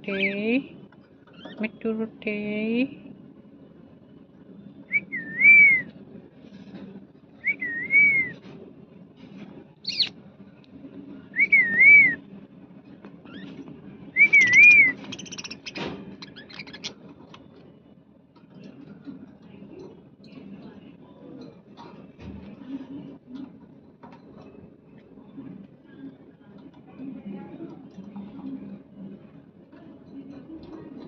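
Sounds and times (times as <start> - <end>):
scratchy budgie chirps: 9.8 - 10.1, 14.3 - 17.0.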